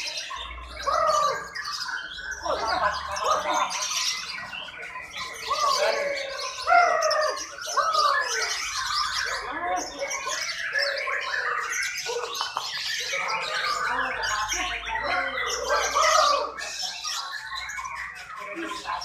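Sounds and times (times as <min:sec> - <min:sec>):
rising and falling bird calls: 0:00.0 - 0:19.0
songbirds chirping and squawking: 0:00.0 - 0:19.0.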